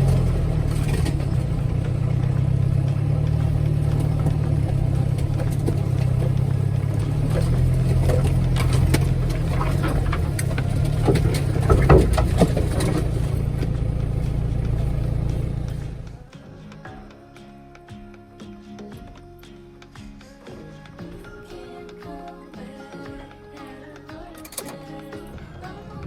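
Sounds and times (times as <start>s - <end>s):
clattering knocks and rattles: 0.0s - 16.2s
off-road vehicle engine running: 0.0s - 17.0s.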